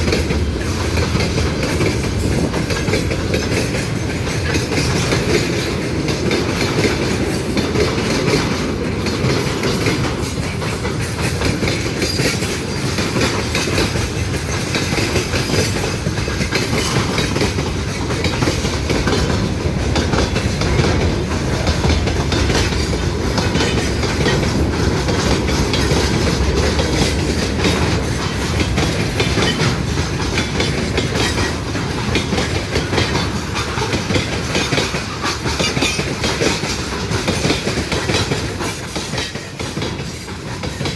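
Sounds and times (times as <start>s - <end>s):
train wheels clattering on rails: 0.0s - 40.9s.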